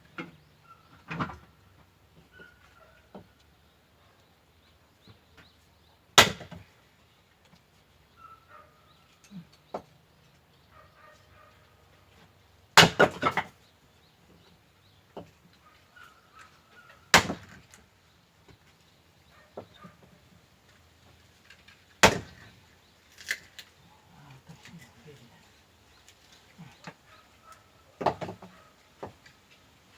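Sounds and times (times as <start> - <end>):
axe chopping firewood: 6.2 - 6.7, 12.8 - 13.6, 17.1 - 17.8, 22.0 - 22.6, 28.0 - 29.1
wood pieces clattering: 21.3 - 23.8.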